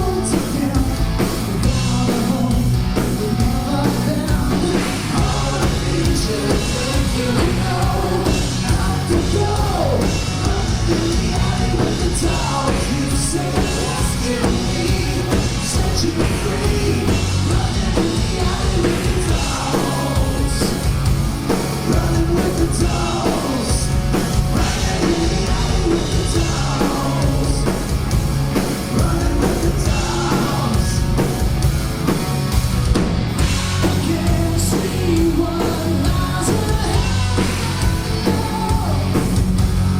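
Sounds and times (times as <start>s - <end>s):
bass: 0.0s - 39.9s
distorted electric guitars: 0.0s - 39.9s
drums: 0.0s - 39.9s
person singing: 1.6s - 20.8s, 24.6s - 27.8s, 28.9s - 31.0s, 33.8s - 39.3s.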